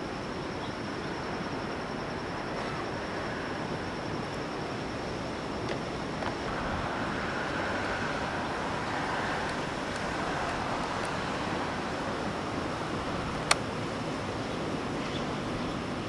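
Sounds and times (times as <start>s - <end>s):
ocean surf washing: 1.4s - 16.0s.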